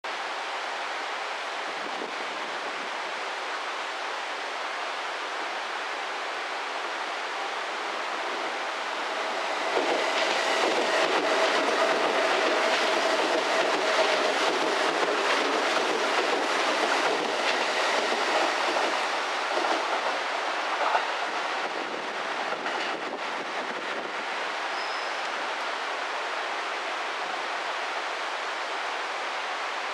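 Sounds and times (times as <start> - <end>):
electric train whine: 1.7 - 29.8
steady rushing noise: 6.4 - 24.6
train wheels clicking over joints: 9.6 - 21.4.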